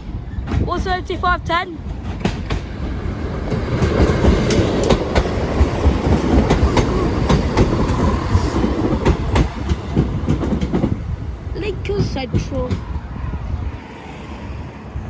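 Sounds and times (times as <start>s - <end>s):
train rumbling past: 0.0s - 15.0s
wheels clicking over rail joints: 1.8s - 13.0s.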